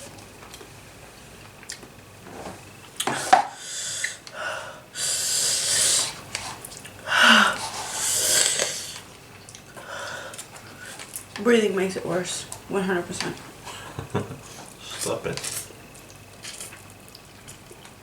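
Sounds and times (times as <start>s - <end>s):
person breathing hard through mouth: 7.0s - 9.0s.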